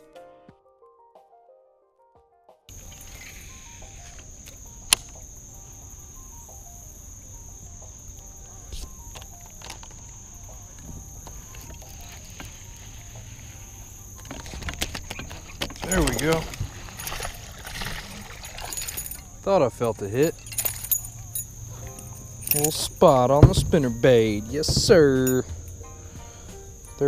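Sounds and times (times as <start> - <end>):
high-pitched insect drone: 2.7 - 27.0
low wind noise: 2.7 - 27.0
sharp click: 4.9 - 5.2.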